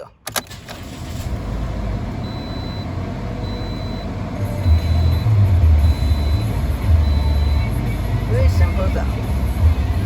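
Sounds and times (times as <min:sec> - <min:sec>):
car engine idling: 0:00.4 - 0:10.0
high warning chime beeping: 0:02.2 - 0:07.7.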